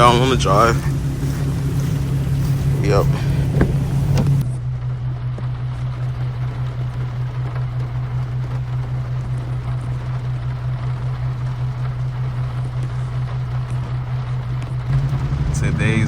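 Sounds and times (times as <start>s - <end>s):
tyres hissing on wet road: 0.0s - 4.4s
car engine drone: 0.0s - 16.0s.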